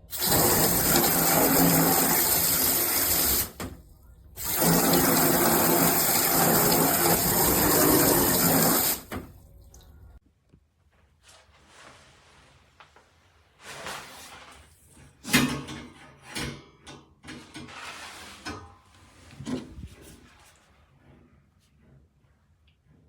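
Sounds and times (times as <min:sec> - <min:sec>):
shower head spraying water: 0:00.1 - 0:03.7, 0:04.4 - 0:09.3.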